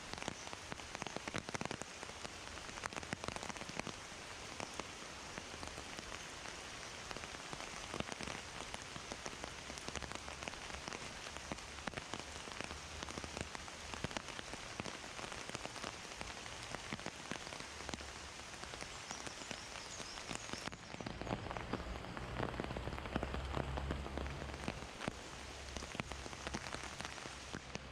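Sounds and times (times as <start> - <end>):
heavy rain pattering on leaves: 0.0 - 27.9.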